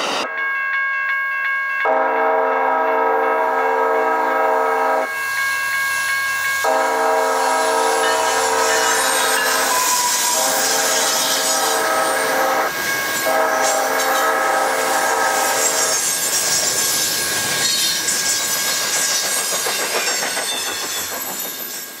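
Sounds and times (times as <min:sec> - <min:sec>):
multi-chime train horn: 0:01.8 - 0:16.3
train wheels squealing: 0:07.4 - 0:22.0
wheels clattering over rail joints: 0:16.0 - 0:22.0.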